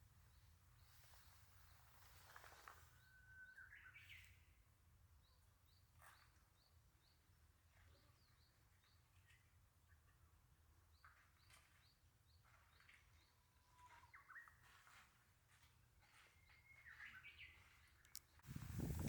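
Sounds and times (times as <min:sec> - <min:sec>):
faint bird chirps and whistles: 0:00.3 - 0:04.5, 0:11.1 - 0:14.9, 0:16.0 - 0:19.0.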